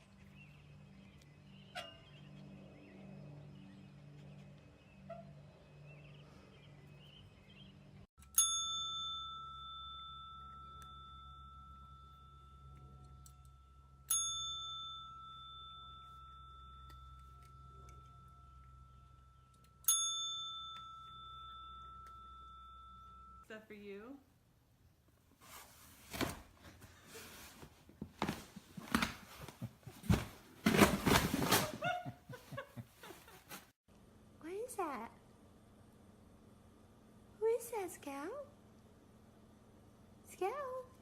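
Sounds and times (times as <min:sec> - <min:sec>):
small metal bell ringing: 0:08.2 - 0:23.5.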